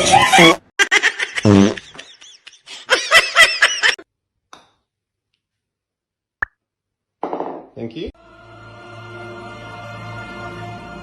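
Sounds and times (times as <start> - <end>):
high-pitched laughter: 0.0 - 4.0.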